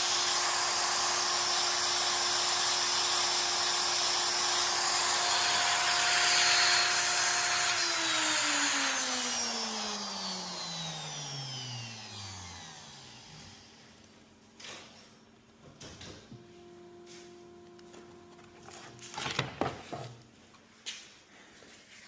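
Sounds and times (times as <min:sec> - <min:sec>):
router spindle whine spinning down: 0:00.0 - 0:14.0, 0:16.4 - 0:19.7.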